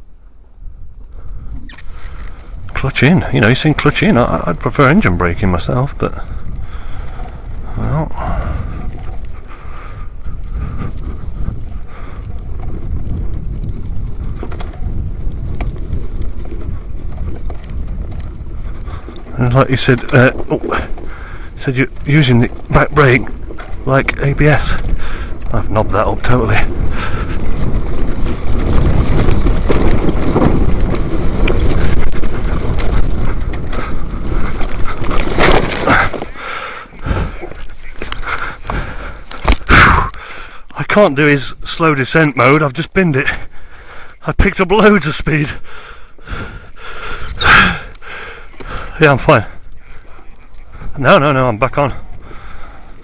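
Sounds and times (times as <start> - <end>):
wind rumble on microphone: 0.0 - 53.0
dirt bike knocks and rattles: 10.3 - 40.0.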